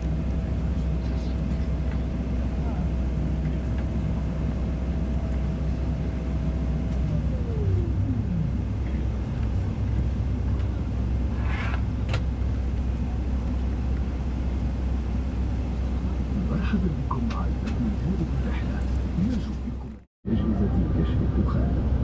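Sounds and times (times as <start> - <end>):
low rumble inside airliner cabin: 0.0 - 22.0
whine sliding down in pitch: 6.8 - 8.8.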